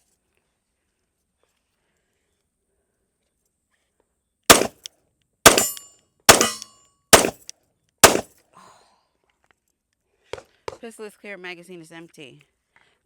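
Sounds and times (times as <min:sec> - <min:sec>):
pistol shots with ringing tail: 0:04.5 - 0:04.9, 0:05.5 - 0:08.2.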